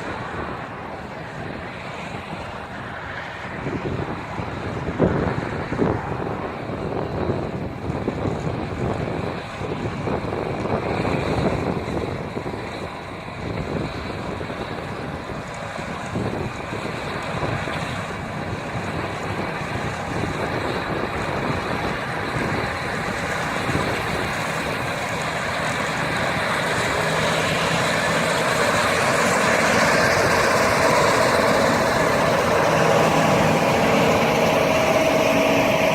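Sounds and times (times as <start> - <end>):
combine harvester engine: 0.0 - 35.9.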